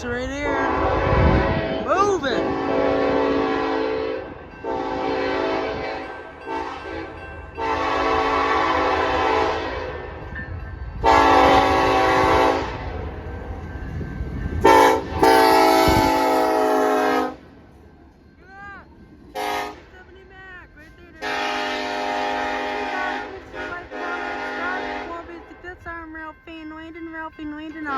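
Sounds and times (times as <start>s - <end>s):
low locomotive rumble: 0.0s - 27.9s
locomotive horn blasts: 0.4s - 10.2s, 11.0s - 13.0s, 14.6s - 17.5s, 19.3s - 19.9s, 21.1s - 25.7s.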